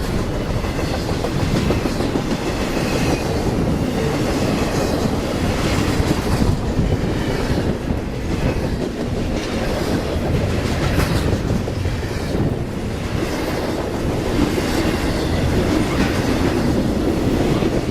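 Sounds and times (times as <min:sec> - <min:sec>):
train wheels rolling on rails: 0:00.0 - 0:17.9.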